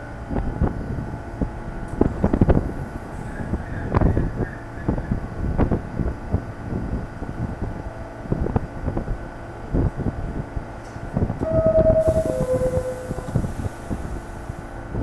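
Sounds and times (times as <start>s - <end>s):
subway wheels clattering: 0.0s - 15.0s
train low rumble: 0.0s - 15.0s
steady high tone: 11.4s - 14.2s.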